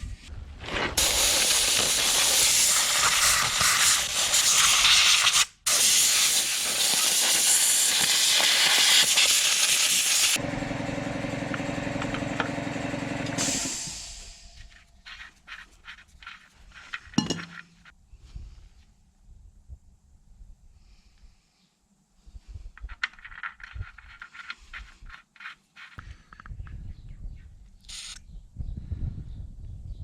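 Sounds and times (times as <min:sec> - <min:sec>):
loud steady hiss: 0:01.0 - 0:10.4
machine hum: 0:10.4 - 0:14.9.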